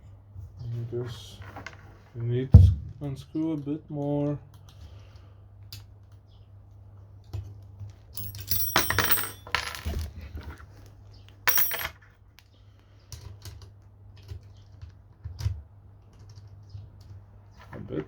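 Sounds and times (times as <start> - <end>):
small metal parts clinking: 8.2 - 10.1, 11.5 - 12.0.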